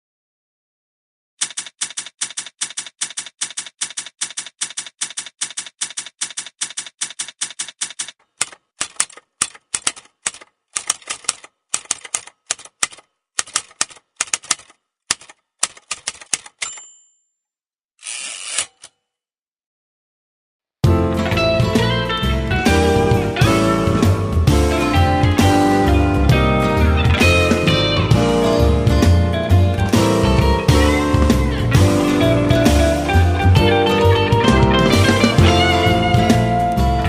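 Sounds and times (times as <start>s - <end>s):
typewriter keys clacking: 1.4s - 16.9s.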